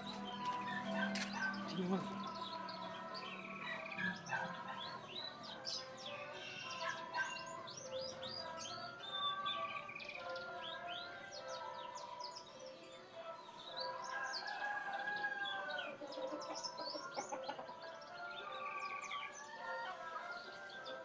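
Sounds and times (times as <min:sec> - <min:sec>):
small birds chirping: 0:00.0 - 0:21.0
rooster crowing: 0:14.0 - 0:16.5.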